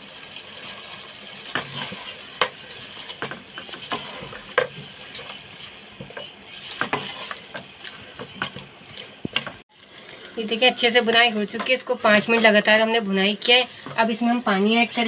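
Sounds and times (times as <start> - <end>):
chicken sizzling in a pot: 0.0 - 13.9
spatula scraping and knocking pan: 0.6 - 9.6.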